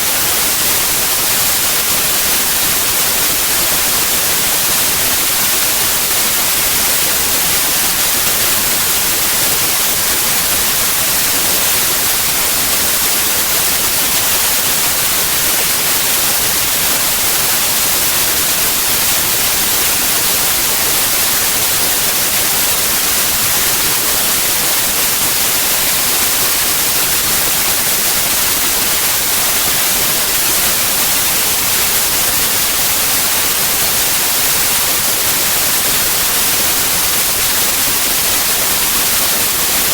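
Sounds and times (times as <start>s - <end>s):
loud white noise hiss: 0.0s - 39.9s.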